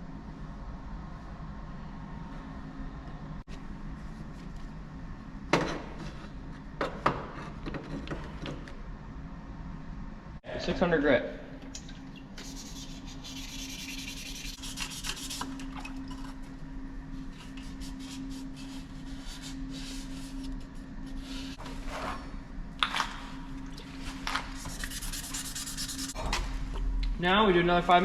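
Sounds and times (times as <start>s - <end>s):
sandpaper rubbing on steel blade: 12.4s - 15.5s, 24.7s - 26.2s.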